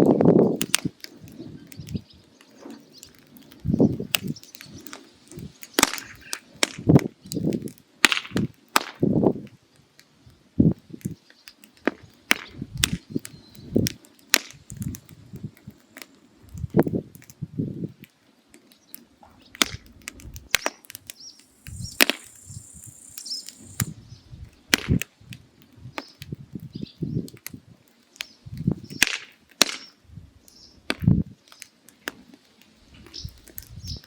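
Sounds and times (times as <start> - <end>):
firewood crackling and popping: 0.0 - 34.0
high hiss: 21.1 - 24.0.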